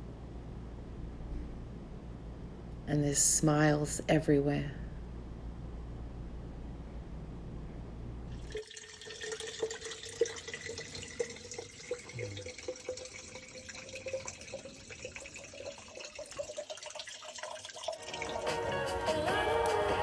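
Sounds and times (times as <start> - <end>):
low rumble: 3.8 - 8.4
water running and trickling: 8.4 - 20.0.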